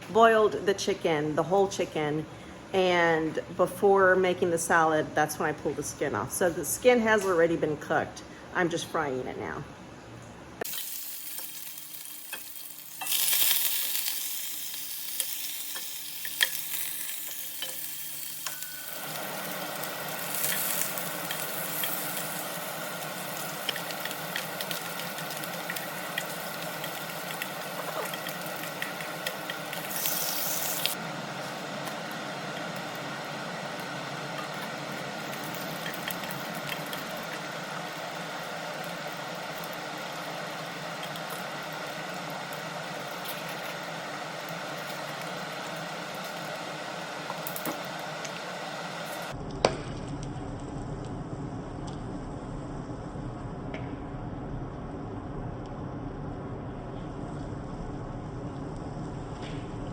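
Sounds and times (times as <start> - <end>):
steady hum: 0.0 - 59.9
chicken skin sizzling in pan: 10.6 - 49.3.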